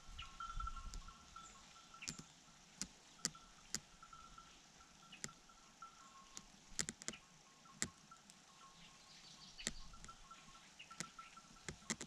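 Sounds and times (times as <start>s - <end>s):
faint bird chirps: 0.0s - 2.4s, 3.2s - 12.0s
sharp clicks: 6.3s - 7.2s, 9.6s - 10.2s, 10.9s - 12.0s.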